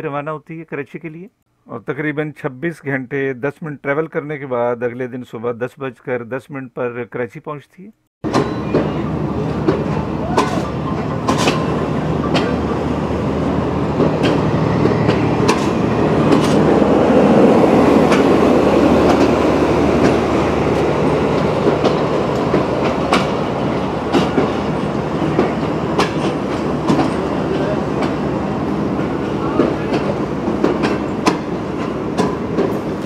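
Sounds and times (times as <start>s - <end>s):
train rumble: 8.2s - 33.0s
wheels clicking over rail joints: 8.3s - 12.9s, 13.6s - 33.0s.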